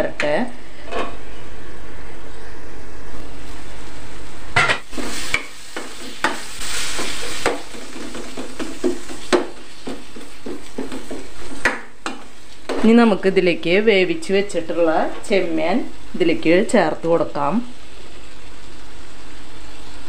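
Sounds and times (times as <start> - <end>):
food sizzling in a pot: 3.2 - 20.0
spoon stirring and knocking pot: 7.0 - 12.9.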